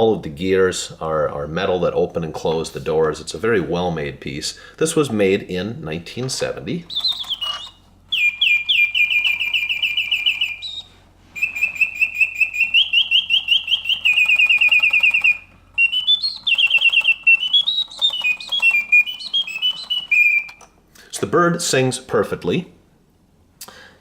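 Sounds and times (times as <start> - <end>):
mechanical bird whistle trilling: 6.9 - 20.6.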